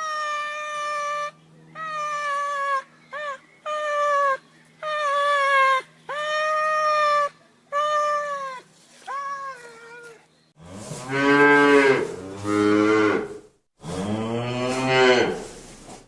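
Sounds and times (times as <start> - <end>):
cat meowing: 7.8 - 10.3.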